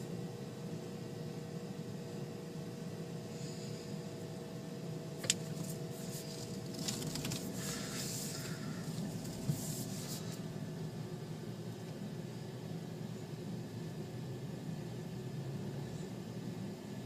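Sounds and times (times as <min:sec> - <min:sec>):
car running hum from inside: 0:05.1 - 0:17.0
hissing rustling noise: 0:09.2 - 0:10.4.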